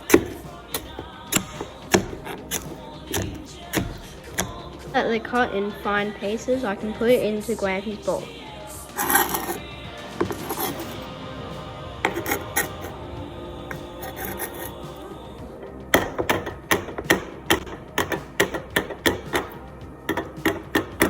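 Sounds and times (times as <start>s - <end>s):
knife scraping on cutting board: 0.0s - 4.8s, 8.9s - 9.6s, 10.2s - 11.1s, 12.1s - 13.0s
knife chopping on board: 0.1s - 4.6s.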